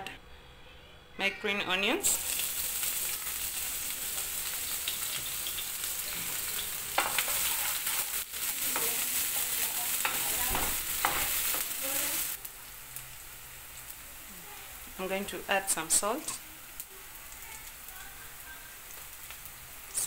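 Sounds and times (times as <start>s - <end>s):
onions sizzling in oil: 2.0s - 20.0s
wooden spatula scraping a pan: 7.0s - 9.0s.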